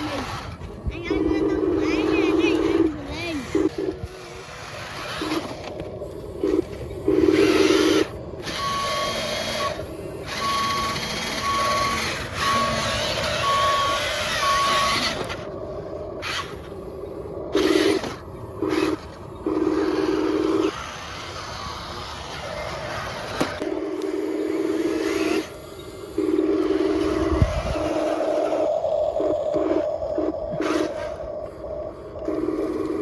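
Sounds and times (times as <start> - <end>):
truck engine running: 0.0 - 31.3
reversing warning beeps: 6.4 - 15.5, 23.6 - 31.2, 32.0 - 33.0.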